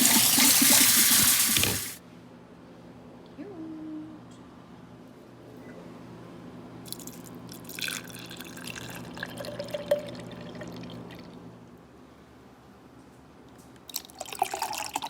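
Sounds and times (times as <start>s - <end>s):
liquid trickling and dripping: 0.0s - 2.0s.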